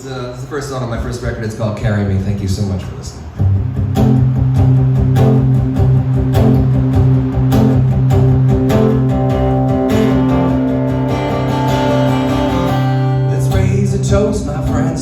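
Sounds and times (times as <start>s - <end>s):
acoustic guitar strumming: 3.4s - 15.0s.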